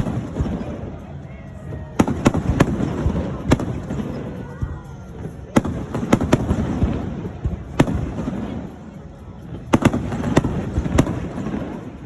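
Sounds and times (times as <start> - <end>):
firework crackles: 0.0 - 12.0
firework shells booming: 5.6 - 8.6.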